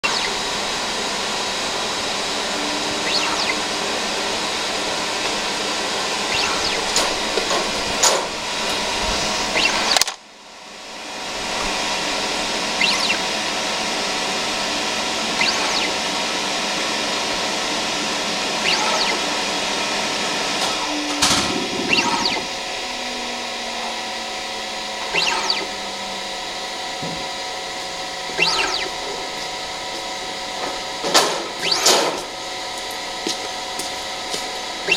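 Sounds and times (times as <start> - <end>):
low tone sliding downward: 0.0 - 10.0, 11.1 - 30.6
machine hum: 0.0 - 34.9
steady tones: 0.0 - 34.9
short motor whir: 2.6 - 10.1, 11.4 - 13.4, 15.1 - 16.6, 18.6 - 19.4, 20.4 - 24.2, 25.0 - 25.9, 28.3 - 29.2, 31.4 - 32.3.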